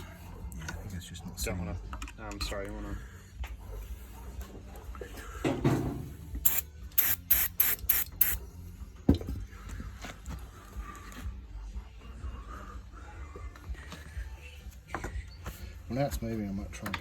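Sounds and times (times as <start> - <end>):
aerosol spray can bursts: 6.4 - 8.4.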